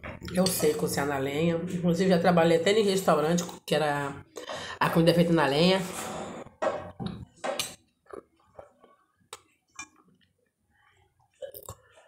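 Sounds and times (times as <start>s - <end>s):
person chewing food: 7.8s - 10.6s.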